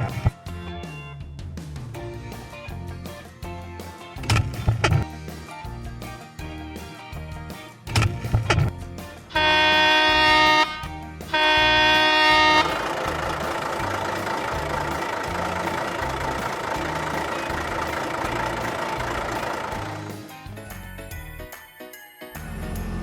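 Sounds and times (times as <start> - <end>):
vehicle running: 0.0 - 20.9, 22.4 - 23.0
background music with steady beat: 0.0 - 23.0
vehicle horn honking: 9.4 - 13.1.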